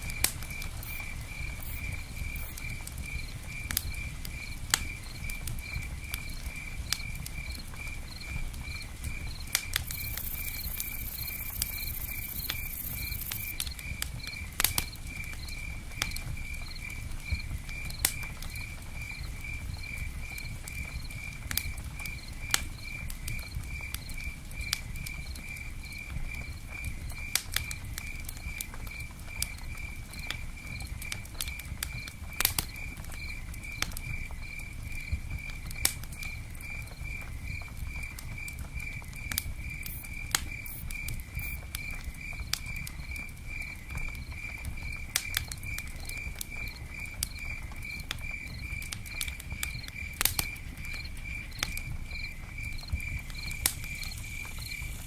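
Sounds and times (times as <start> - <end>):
fire crackling: 0.0 - 55.0
rain pattering ticks: 0.0 - 55.0
cricket chirping: 0.1 - 21.4, 36.2 - 55.0.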